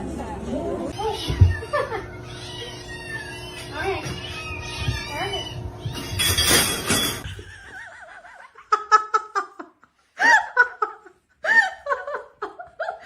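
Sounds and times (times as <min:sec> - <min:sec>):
cat meowing: 0:01.0 - 0:06.5
person laughing: 0:01.6 - 0:02.2, 0:07.2 - 0:13.0.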